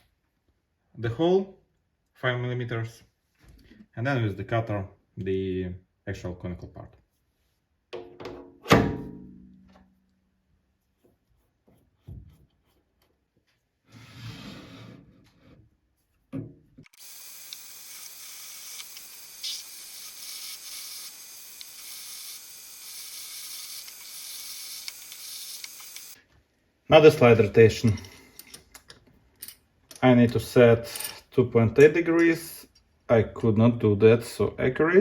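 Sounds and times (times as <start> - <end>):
lathe running and drilling: 16.9 - 26.2.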